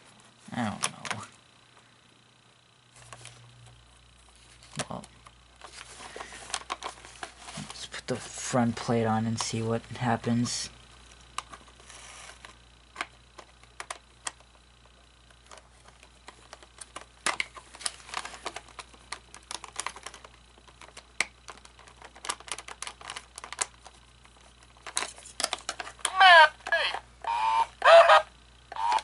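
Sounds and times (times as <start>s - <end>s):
faint low hum: 0.0s - 29.0s
plastic parts clicking: 4.7s - 7.3s, 15.3s - 26.2s.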